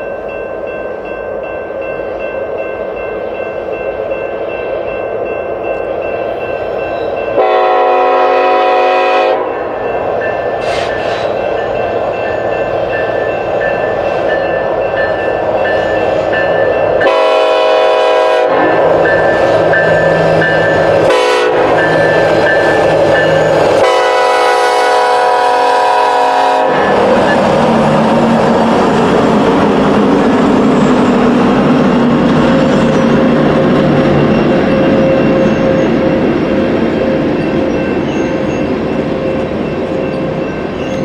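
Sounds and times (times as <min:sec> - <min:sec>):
locomotive air horn blasts: 0:07.4 - 0:09.6, 0:17.0 - 0:19.6, 0:21.0 - 0:22.1, 0:23.7 - 0:27.2.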